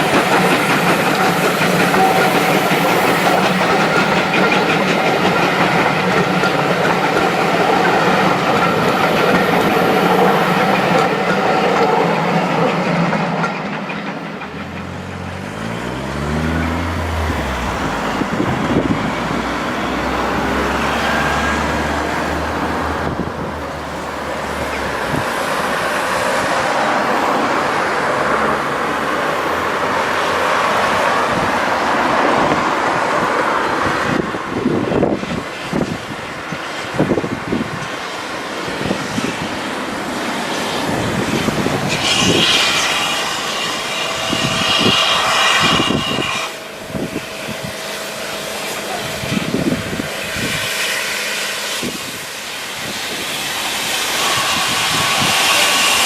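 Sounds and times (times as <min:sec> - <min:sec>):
train wheels clattering: 0:00.0 - 0:23.2, 0:23.9 - 0:56.0
low engine-like note: 0:14.8 - 0:22.0, 0:42.0 - 0:52.2.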